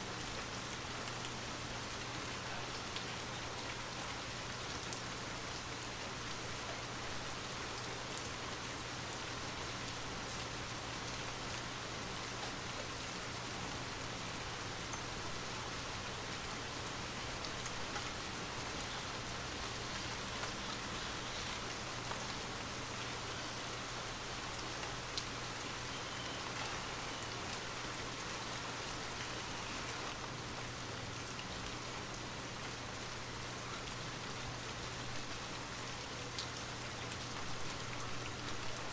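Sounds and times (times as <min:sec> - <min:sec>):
steady rain hiss: 0:00.0 - 0:38.9
raindrops ticking: 0:17.3 - 0:22.5.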